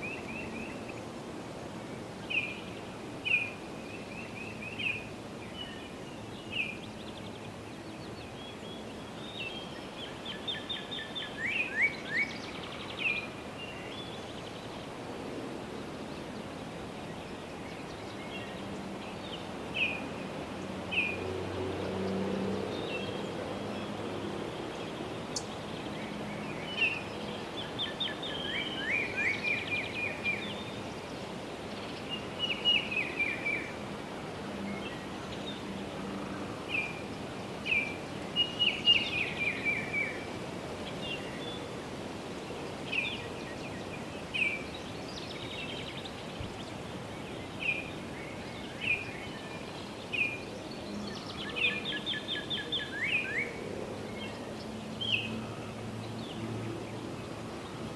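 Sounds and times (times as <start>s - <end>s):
songbirds chirping and trilling: 0.0s - 57.9s
wind in foliage: 0.0s - 57.9s
distant road hum: 15.1s - 57.9s.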